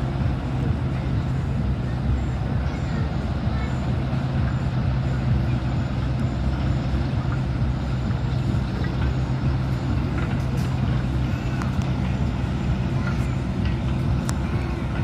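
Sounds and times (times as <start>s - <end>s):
large engine running: 0.0s - 15.0s.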